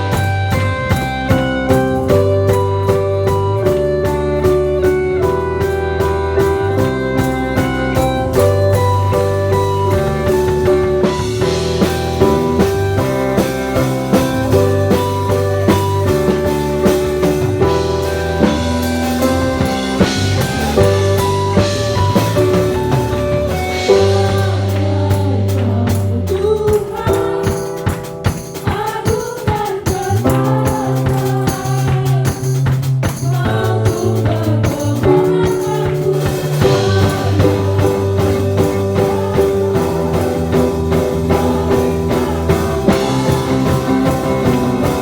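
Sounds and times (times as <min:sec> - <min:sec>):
bass: 0:00.0 - 0:45.0
drum kit beat: 0:00.0 - 0:45.0
held keyboard chords: 0:00.0 - 0:45.0
tambourine: 0:00.0 - 0:45.0
people singing: 0:10.2 - 0:23.0, 0:23.6 - 0:27.8, 0:28.6 - 0:32.6, 0:33.2 - 0:45.0.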